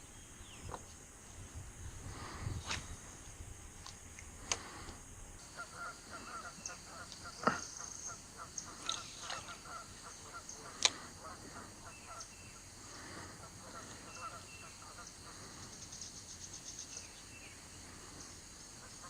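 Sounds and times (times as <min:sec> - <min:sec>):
birds honking: 0:05.4 - 0:15.7.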